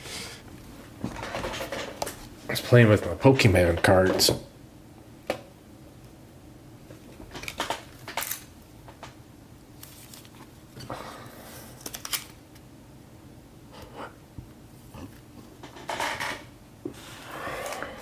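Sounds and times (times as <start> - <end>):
foil wrappers crinkling: 11.7 - 12.4.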